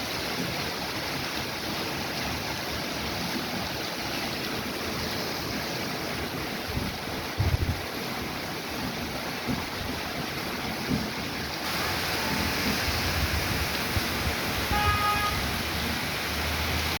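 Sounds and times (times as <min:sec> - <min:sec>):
heavy rain pouring: 0:00.0 - 0:17.0
wind thumping on microphone: 0:06.3 - 0:16.0.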